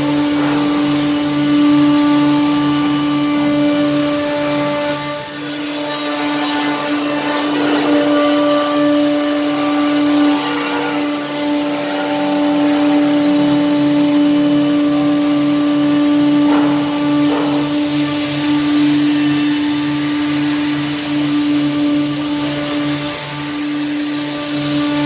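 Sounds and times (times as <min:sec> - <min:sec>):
saw rasping: 0:00.0 - 0:25.0
sawing machine humming: 0:00.0 - 0:25.0.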